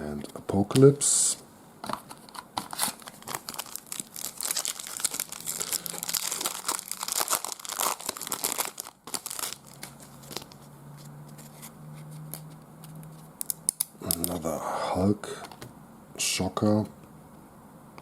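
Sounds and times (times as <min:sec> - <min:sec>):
foil wrapper crinkling and tearing: 0:02.7 - 0:10.6.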